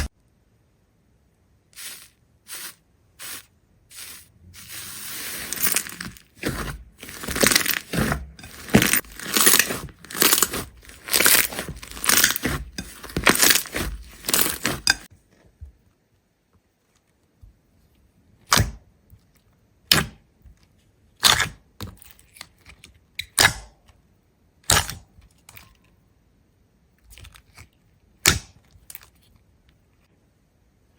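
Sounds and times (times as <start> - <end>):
crisp crunching: 1.8 - 15.1.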